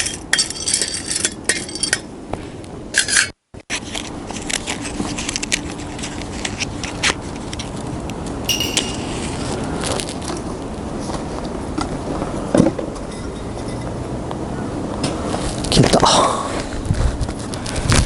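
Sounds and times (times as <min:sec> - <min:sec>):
metallic ring: 0:08.5 - 0:09.9.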